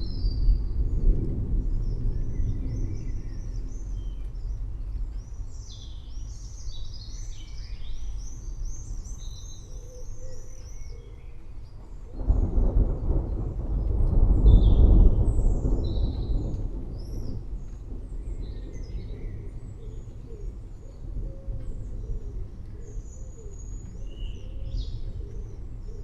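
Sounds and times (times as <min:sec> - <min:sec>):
distant thunder rumbling: 0:00.0 - 0:05.1, 0:11.8 - 0:24.1
songbirds singing: 0:00.0 - 0:26.0.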